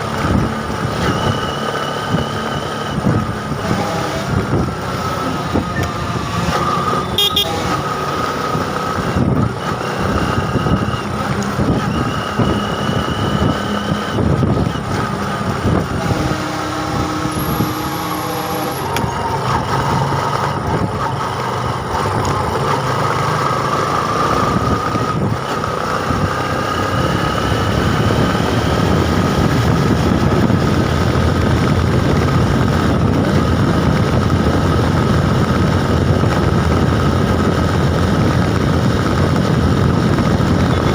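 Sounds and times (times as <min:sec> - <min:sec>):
vehicle engines running: 0:00.0 - 0:40.9
short horn toots: 0:06.7 - 0:07.9.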